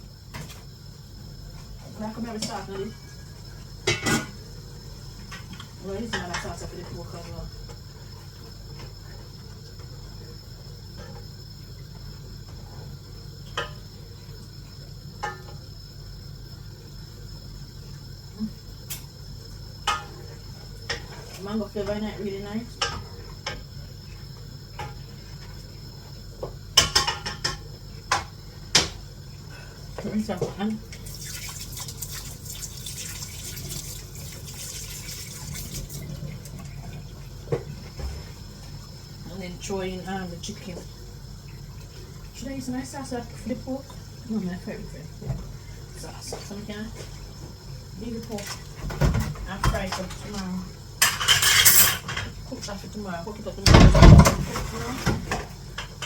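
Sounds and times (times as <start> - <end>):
low kitchen hum: 0.0 - 56.0
tap running water into pan: 30.0 - 38.9.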